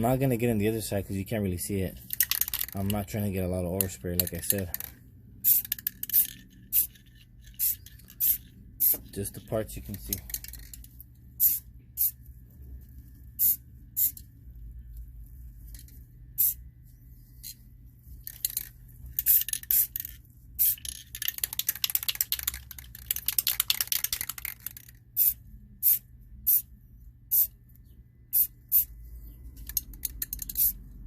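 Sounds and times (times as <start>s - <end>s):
rapid clicking rattle: 2.1s - 3.1s, 18.2s - 25.0s, 29.6s - 30.8s
spray paint can hissing: 5.4s - 7.0s, 7.6s - 9.0s, 11.4s - 12.2s, 13.4s - 14.2s, 16.4s - 16.6s, 19.2s - 20.0s, 20.6s - 20.8s, 25.2s - 26.6s, 27.3s - 27.5s, 28.3s - 28.9s, 30.4s - 30.8s.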